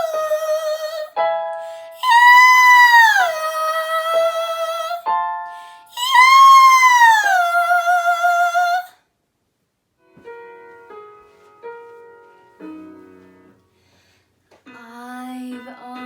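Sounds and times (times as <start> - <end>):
piano chords: 0.0 - 8.9, 10.0 - 16.0
girl singing high note: 5.9 - 8.9, 14.7 - 16.0.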